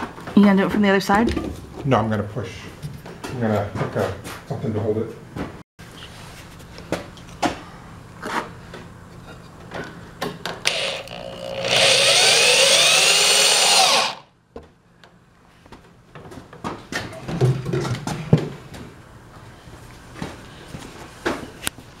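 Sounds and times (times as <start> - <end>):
power drill driving screw: 10.7 - 14.3.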